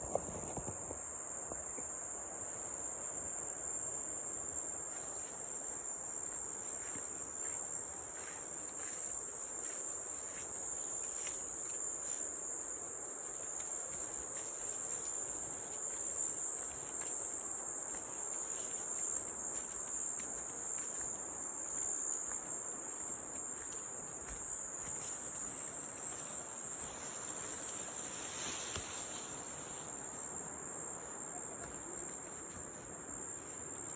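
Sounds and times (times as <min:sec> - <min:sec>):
insects droning high-pitched: 0:00.0 - 0:33.9.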